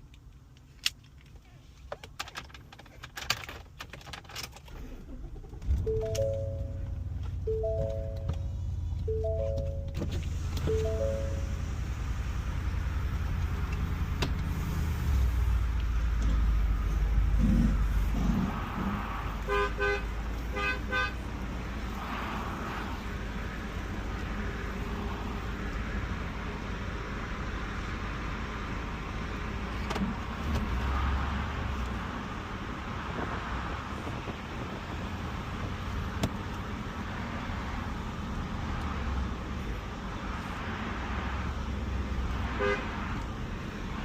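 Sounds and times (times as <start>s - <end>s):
pickup engine rumbling: 2.0s - 44.0s
car horn toots: 19.4s - 21.2s, 42.5s - 43.0s.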